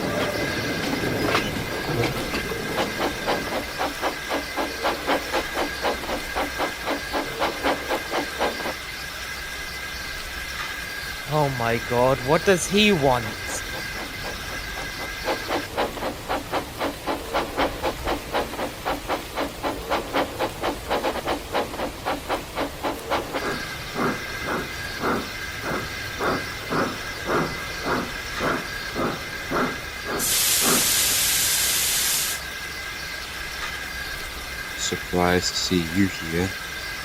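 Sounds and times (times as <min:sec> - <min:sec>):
steam hissing: 0:00.0 - 0:32.8
steam locomotive chuffing: 0:00.0 - 0:33.0, 0:33.8 - 0:37.0.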